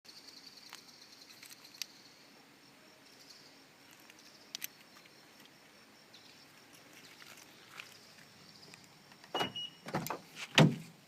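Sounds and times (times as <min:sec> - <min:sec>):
insects chirring: 0:00.1 - 0:11.0.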